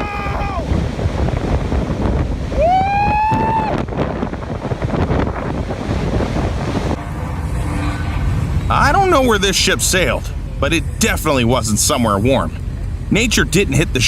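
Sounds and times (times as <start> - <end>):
strong wind buffeting microphone: 0.0 - 14.0
high-pitched rising tone: 6.6 - 12.5.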